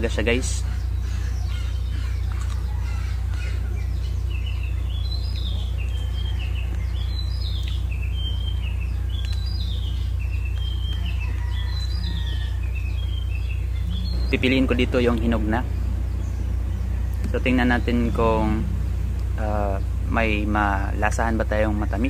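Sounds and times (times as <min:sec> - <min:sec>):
birds chirping: 0:00.0 - 0:22.0
steady low hum: 0:00.0 - 0:22.0.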